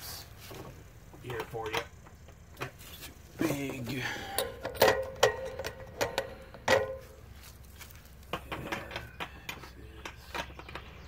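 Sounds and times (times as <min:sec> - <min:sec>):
metal tools clinking: 0:03.4 - 0:07.2.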